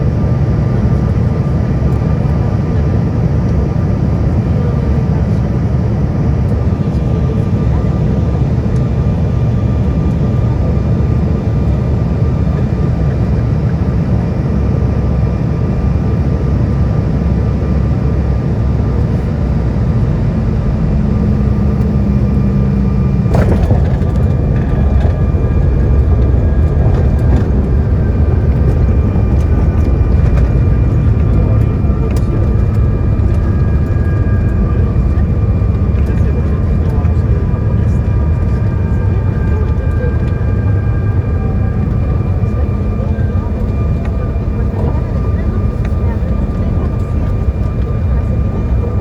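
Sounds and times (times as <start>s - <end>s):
jet engines and rushing air: 0.0s - 49.0s
faint whining tones: 18.9s - 49.0s.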